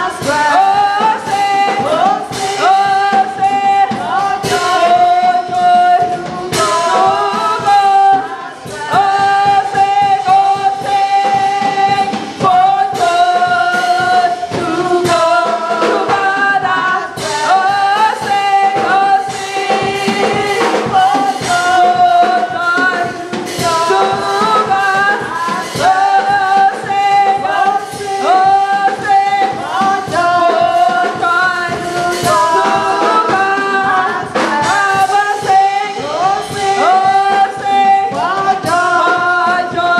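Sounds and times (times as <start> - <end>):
drum beat: 0.0 - 39.9
gospel choir singing: 0.0 - 39.9
live band accompaniment: 0.0 - 39.9.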